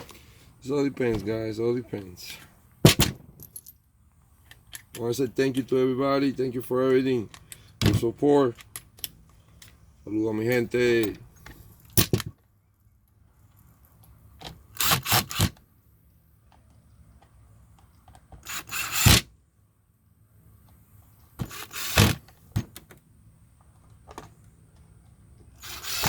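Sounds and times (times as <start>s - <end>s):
chainsaw recoil starter pulls: 14.7s - 15.6s, 18.4s - 19.2s, 21.4s - 22.3s, 25.6s - 26.0s.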